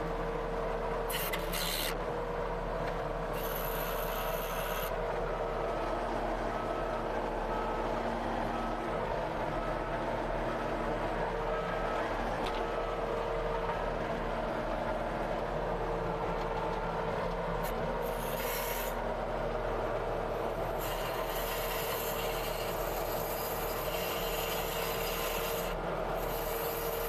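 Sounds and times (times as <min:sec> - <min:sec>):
skid steer engine running: 0:00.0 - 0:27.0.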